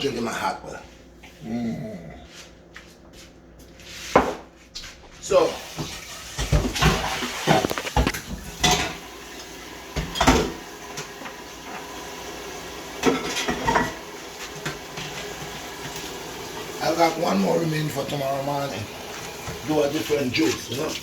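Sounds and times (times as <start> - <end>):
dishes clinking and knocking: 5.8 - 9.1, 9.9 - 11.2, 13.0 - 16.0.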